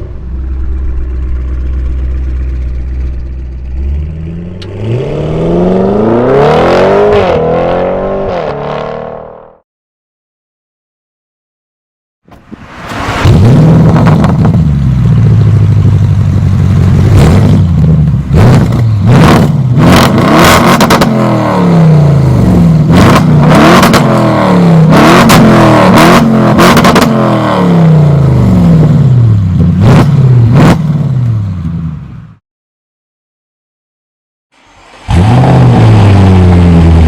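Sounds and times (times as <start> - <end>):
car engine revving hard: 4.2 - 9.4, 18.3 - 29.0, 34.9 - 37.0.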